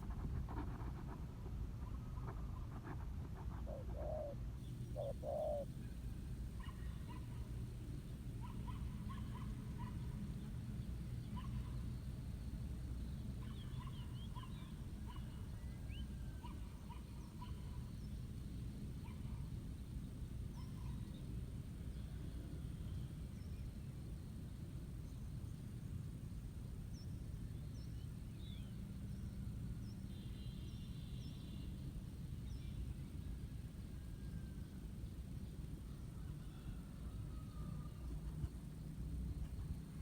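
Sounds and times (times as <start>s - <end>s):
dove cooing: 3.4s - 5.7s
small birds chirping: 3.6s - 5.7s.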